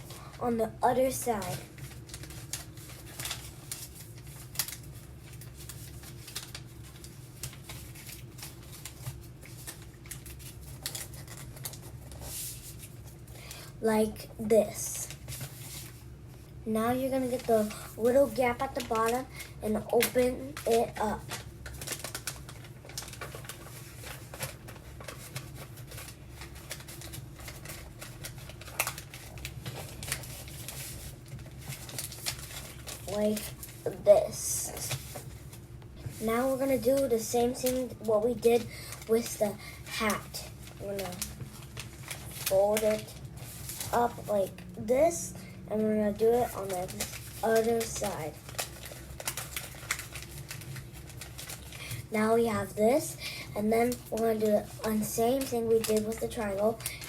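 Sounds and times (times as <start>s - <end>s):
low steady hum: 0.0s - 57.0s
paper rustling and crackling: 0.0s - 57.0s.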